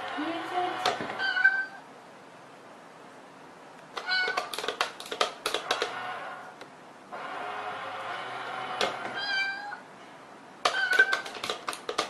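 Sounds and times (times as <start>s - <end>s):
cat meowing: 1.2s - 1.9s, 4.0s - 4.6s, 9.1s - 9.9s, 10.7s - 11.3s
sharp clicks: 3.9s - 6.0s, 10.6s - 12.0s.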